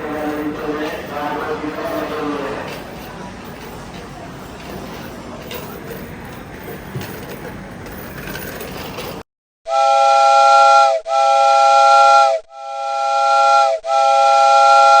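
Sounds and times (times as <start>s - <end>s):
platform background noise: 0.0s - 9.2s.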